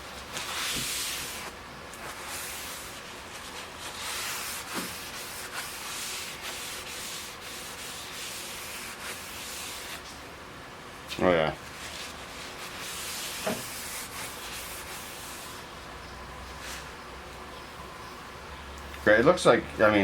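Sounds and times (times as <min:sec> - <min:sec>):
hand rubbing on metal table: 0:00.4 - 0:10.0, 0:11.8 - 0:15.7.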